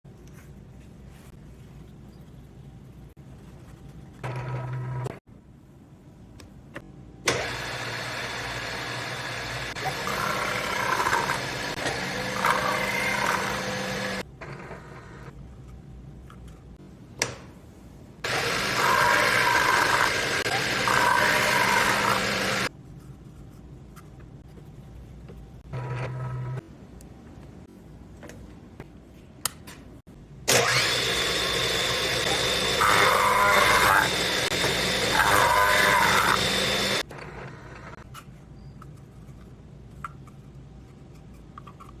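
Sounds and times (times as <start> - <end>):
milling machine cutting: 7.3 - 14.2, 18.2 - 22.7, 30.5 - 37.1.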